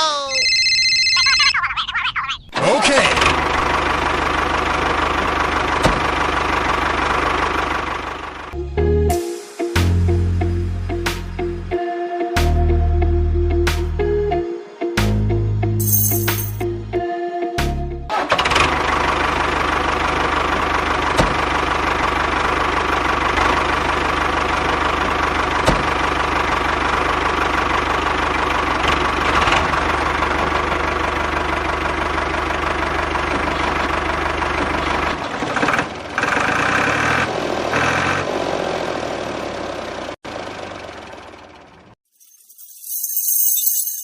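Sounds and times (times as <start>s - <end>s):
engine idling: 3.1s - 8.6s, 18.1s - 36.6s, 38.7s - 42.0s.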